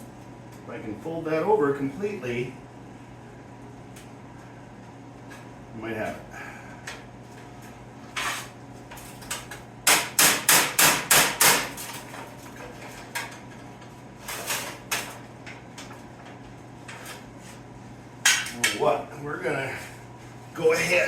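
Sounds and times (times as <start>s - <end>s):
hammer striking sheet metal: 9.8s - 11.7s.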